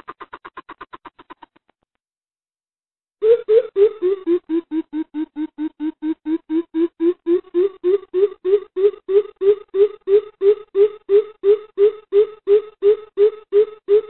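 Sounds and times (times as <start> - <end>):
bird hooting call: 3.2 - 14.0.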